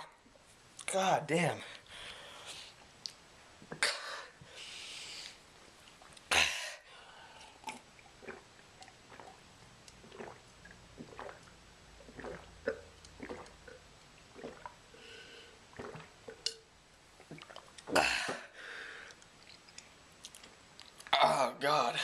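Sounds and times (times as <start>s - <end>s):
person chewing with wet smacks: 3.0s - 3.8s, 7.6s - 14.8s, 17.2s - 18.0s, 19.1s - 21.2s.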